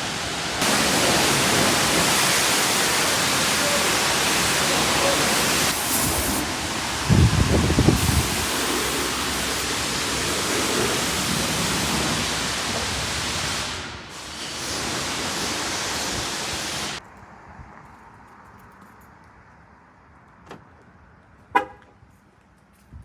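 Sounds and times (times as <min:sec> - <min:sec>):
loud steady rushing noise: 0:00.0 - 0:17.0.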